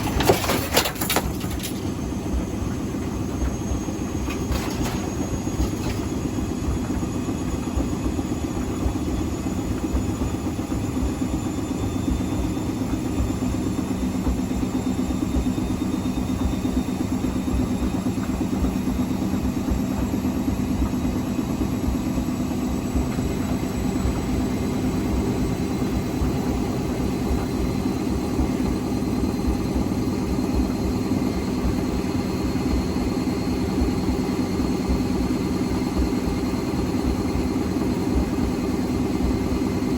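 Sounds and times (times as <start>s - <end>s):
washing machine drum spinning: 0.0s - 39.9s.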